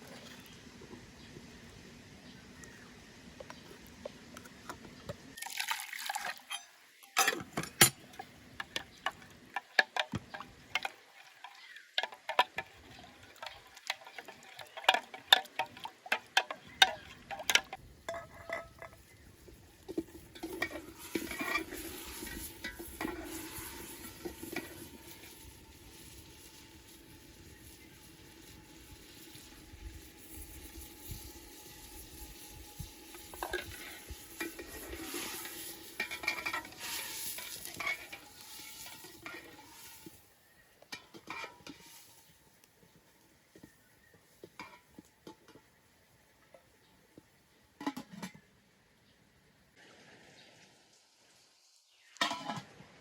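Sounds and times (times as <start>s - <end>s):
water pouring: 5.4s - 7.2s, 19.8s - 40.2s
dishes and utensils clinking: 6.4s - 19.2s, 33.4s - 39.6s.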